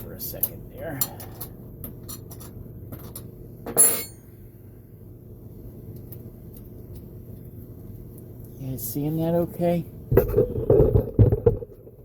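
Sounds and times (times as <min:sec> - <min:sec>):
loud metallic clink: 0:03.8 - 0:04.3.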